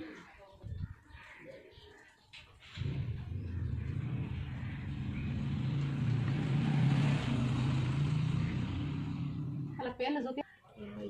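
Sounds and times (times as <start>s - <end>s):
vehicle engine running: 2.8s - 9.9s.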